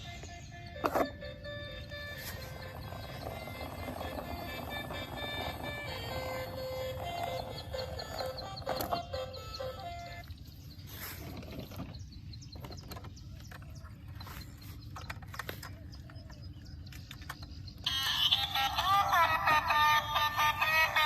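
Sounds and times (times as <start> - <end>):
music: 0.0 - 10.3, 17.9 - 21.0.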